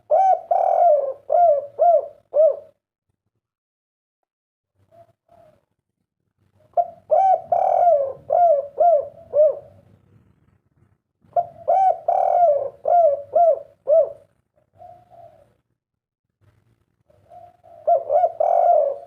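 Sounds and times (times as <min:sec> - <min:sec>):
dove cooing: 0:00.0 - 0:02.8, 0:04.8 - 0:05.7, 0:06.6 - 0:09.9, 0:11.2 - 0:15.7, 0:17.1 - 0:19.0.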